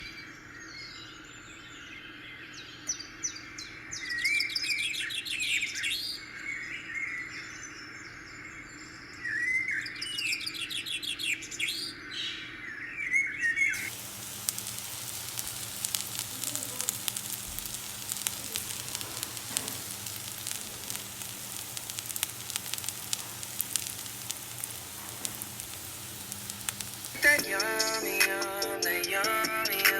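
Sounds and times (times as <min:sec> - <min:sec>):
food sizzling in hot oil: 0:13.8 - 0:27.9.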